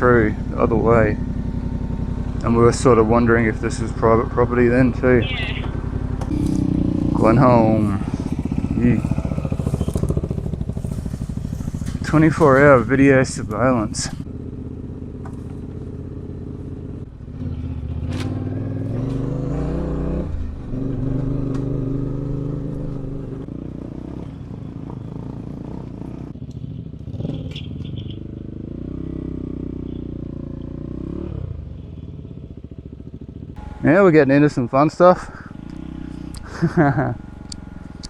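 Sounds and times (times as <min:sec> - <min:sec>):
motorcycle engine revving: 0:00.0 - 0:38.0
bike clattering over rough ground: 0:09.4 - 0:13.4.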